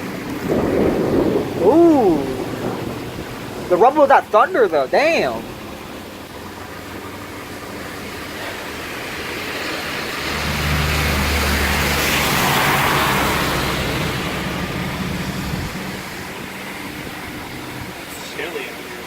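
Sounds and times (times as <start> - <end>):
car passing by: 6.7 - 19.0.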